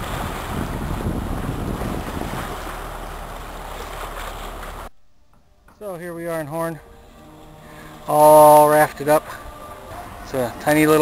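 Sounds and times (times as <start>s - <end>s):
water rushing along hull: 0.0s - 4.9s, 5.8s - 11.0s
wind buffeting microphone: 0.0s - 4.9s.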